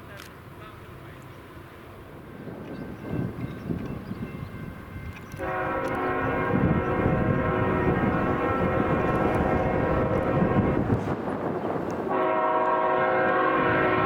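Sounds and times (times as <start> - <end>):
train rumbling: 0.0 - 14.0
locomotive air horn: 5.4 - 11.0, 12.1 - 14.0.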